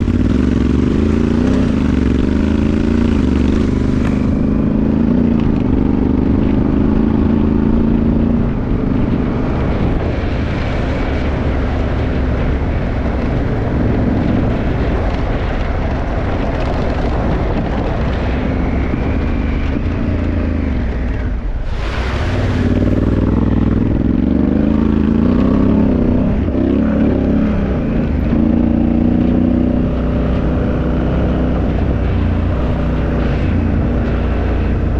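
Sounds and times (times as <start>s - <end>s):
motorcycle engine accelerating: 0.0s - 34.9s
short rushing noise: 21.3s - 23.9s.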